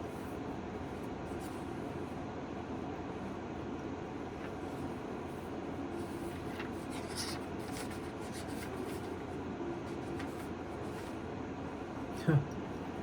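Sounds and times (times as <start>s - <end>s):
steady room hum: 0.0s - 13.0s
paper rustling: 6.0s - 11.2s.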